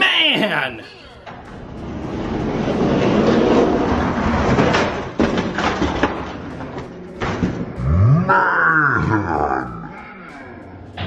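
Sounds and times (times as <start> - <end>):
toy trucks rolling on plastic track: 1.1 - 8.0.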